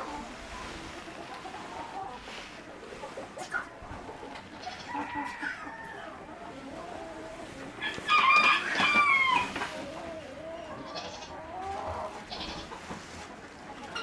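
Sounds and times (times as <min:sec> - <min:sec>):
hens clucking softly: 0:00.0 - 0:14.0
rooster crowing: 0:04.6 - 0:06.2, 0:07.8 - 0:09.6.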